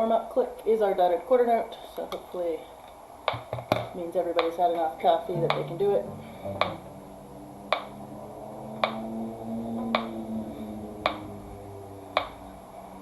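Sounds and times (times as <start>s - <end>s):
low cello notes: 5.2s - 12.5s
metronome clicking: 5.4s - 6.8s.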